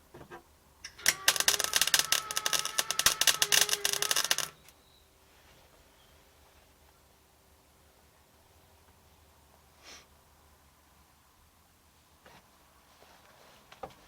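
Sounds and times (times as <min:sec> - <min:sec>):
welder spattering crackle: 0:00.9 - 0:04.7.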